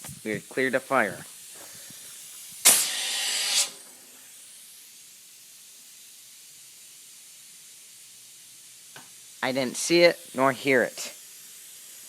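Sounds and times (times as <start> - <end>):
faint steady hiss: 0.0 - 12.0
air cannon firing: 2.6 - 3.9.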